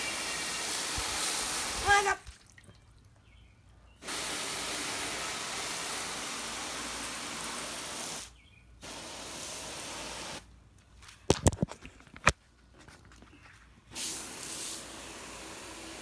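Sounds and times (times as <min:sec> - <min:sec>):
water spraying from nozzle: 0:00.0 - 0:02.6, 0:04.0 - 0:10.5, 0:13.9 - 0:16.0.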